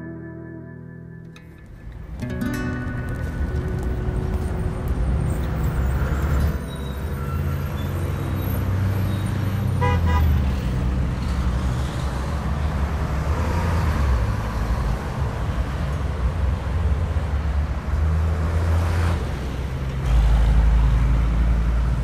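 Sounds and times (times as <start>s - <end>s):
rumble of passing vehicles: 1.2s - 22.0s
car horn toot: 9.0s - 10.5s.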